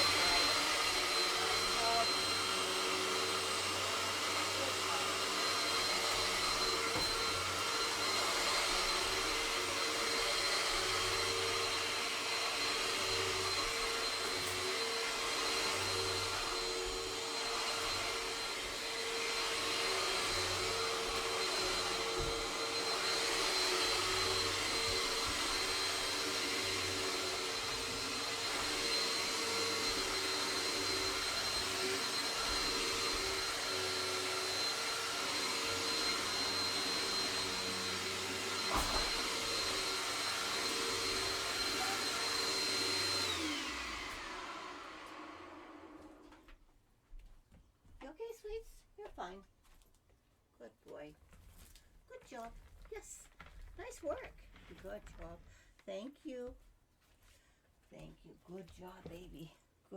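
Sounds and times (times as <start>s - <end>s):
vacuum cleaner running: 0.0s - 46.5s.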